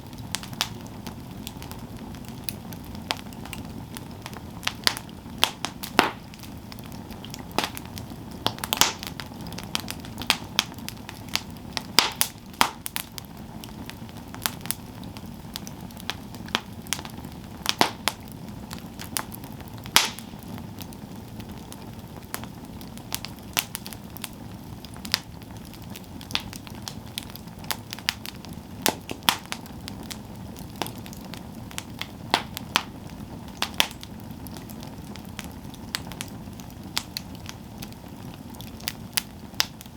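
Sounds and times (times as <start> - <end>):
low rush of flames: 0.0 - 39.9
wood crackling and popping: 0.0 - 39.9.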